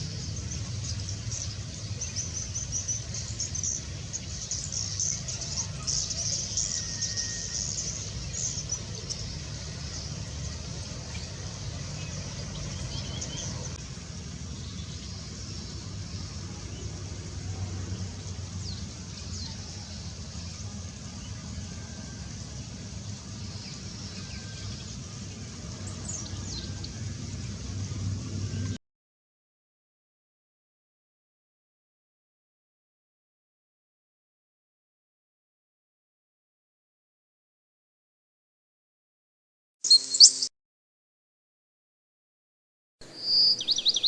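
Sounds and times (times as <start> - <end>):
small birds chirping: 0.0 - 17.1, 39.8 - 40.5, 43.1 - 44.0.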